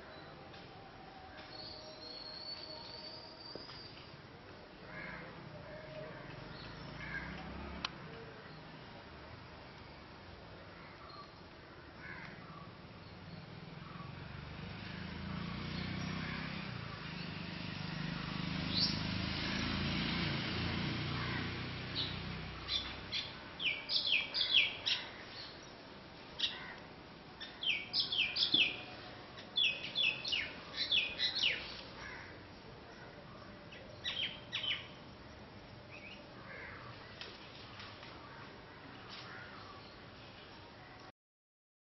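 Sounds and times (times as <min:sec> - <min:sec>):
small birds chirping: 0:21.9 - 0:38.4.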